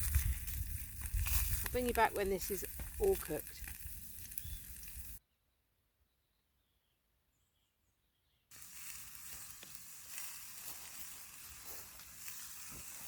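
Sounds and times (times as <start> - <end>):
steak sizzling in a pot: 0.0 - 5.2, 8.5 - 13.0.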